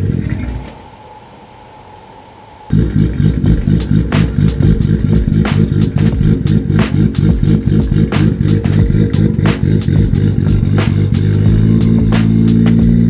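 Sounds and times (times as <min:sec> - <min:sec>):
car engine idling unevenly: 0:02.7 - 0:13.0
exhaust cracks: 0:02.7 - 0:13.0.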